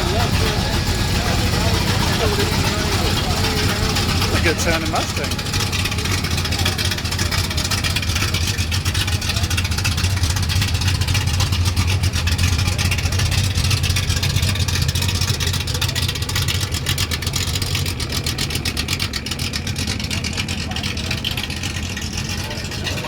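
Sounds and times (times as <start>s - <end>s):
car engine exhaust rumble: 0.0s - 23.0s.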